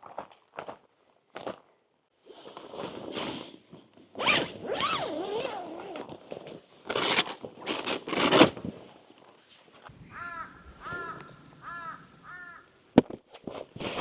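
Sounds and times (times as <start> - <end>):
bird cawing: 10.0 - 12.8.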